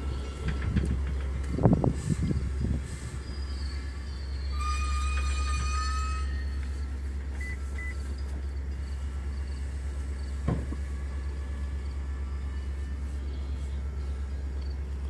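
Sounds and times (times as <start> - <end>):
train low rumble: 0.0 - 15.0
high metallic squeal: 1.7 - 14.5
short beeps: 7.4 - 8.1.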